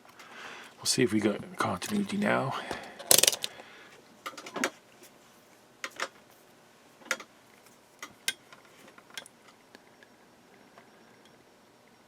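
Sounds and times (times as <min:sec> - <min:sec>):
probe tips clicking on pins: 0:03.1 - 0:03.5.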